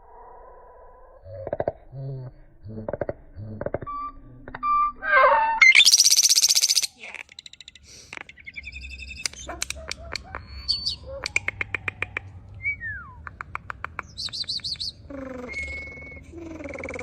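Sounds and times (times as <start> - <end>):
fast high bird trill: 5.2 - 7.0
bird chirps and clicks: 5.6 - 15.9.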